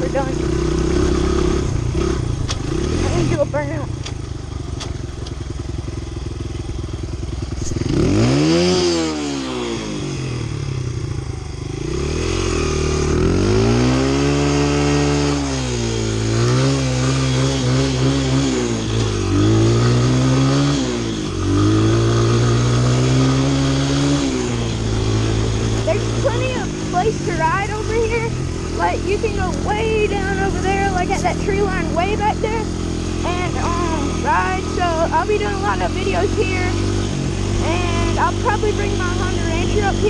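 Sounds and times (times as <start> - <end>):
dirt bike engine idling and revving: 0.0 - 40.0.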